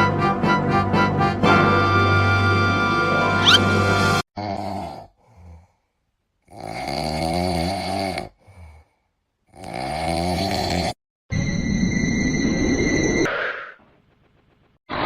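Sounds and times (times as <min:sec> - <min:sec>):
person snoring: 0:04.4 - 0:11.0.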